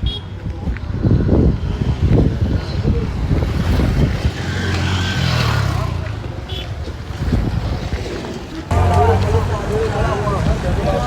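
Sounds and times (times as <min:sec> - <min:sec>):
vehicle engine passing: 0:08.7 - 0:11.0.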